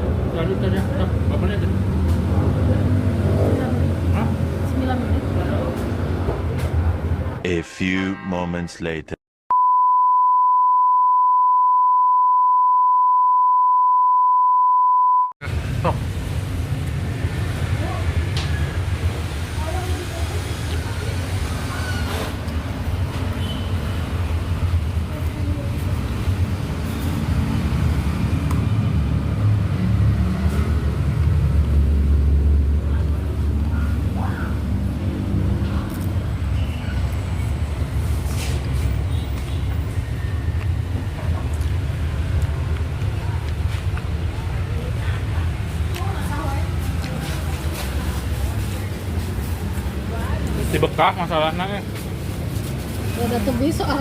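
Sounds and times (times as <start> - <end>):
steady electronic beep: 9.5 - 15.4.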